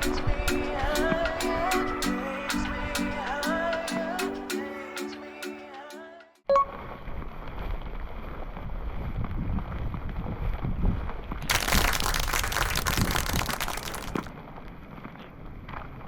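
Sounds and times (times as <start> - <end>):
wind buffeting microphone: 8.7 - 11.5.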